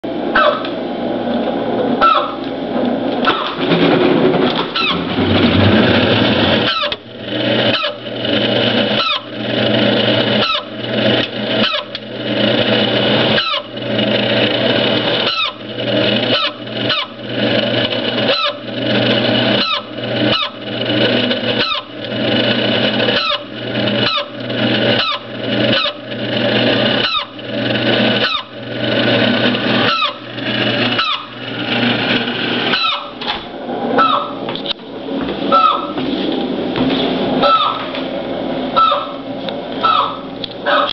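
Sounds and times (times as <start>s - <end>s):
refrigerator humming: 0.0s - 40.9s
squawking squeals: 2.0s - 2.4s, 4.7s - 5.1s, 6.6s - 7.0s, 7.6s - 8.0s, 8.9s - 9.3s, 10.3s - 10.8s, 11.6s - 12.0s, 13.4s - 13.8s, 15.2s - 15.7s, 16.3s - 17.2s, 18.2s - 18.7s, 19.5s - 20.6s, 21.6s - 22.0s, 23.1s - 26.0s, 26.9s - 27.4s, 28.0s - 28.6s, 29.8s - 31.4s, 32.7s - 33.2s, 34.0s - 34.4s, 35.5s - 36.0s, 37.4s - 37.9s, 38.8s - 39.2s, 39.8s - 40.9s.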